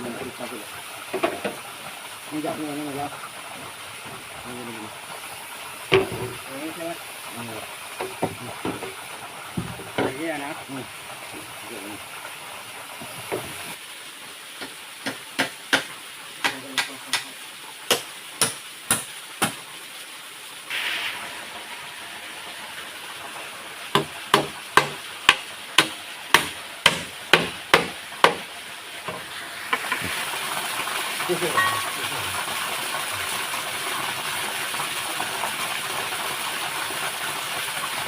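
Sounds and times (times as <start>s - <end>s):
chopping blows on wood: 14.6s - 17.3s, 17.9s - 19.6s, 24.0s - 28.4s.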